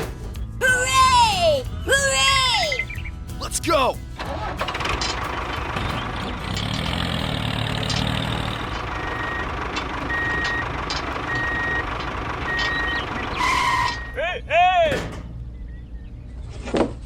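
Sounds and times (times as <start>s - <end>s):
vehicle engine running: 4.0s - 14.1s
reversing alarm beeping: 8.8s - 14.2s.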